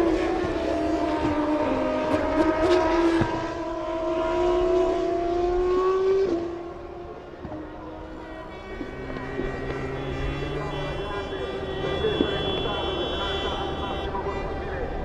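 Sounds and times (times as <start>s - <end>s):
racing engine at high revs: 0.0s - 15.0s.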